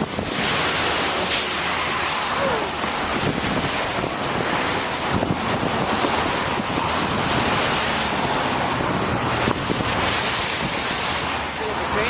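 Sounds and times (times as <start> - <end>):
tyre hiss on wet pavement: 0.0 - 12.0
wind over microphone: 0.0 - 12.0.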